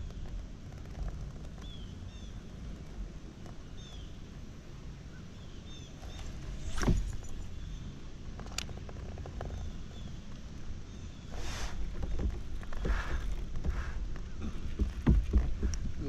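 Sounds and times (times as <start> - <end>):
wind rumbling on microphone: 0.0 - 16.0
sharp thump: 6.5 - 7.4.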